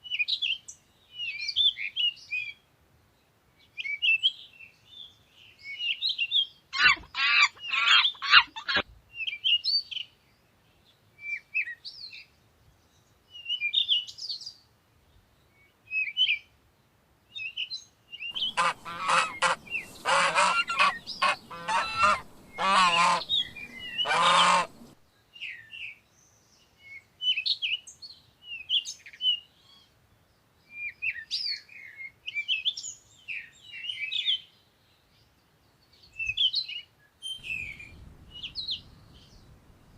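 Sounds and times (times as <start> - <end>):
small birds chirping: 18.3 - 25.0, 37.3 - 39.9
larger bird rapid calls: 18.4 - 25.0.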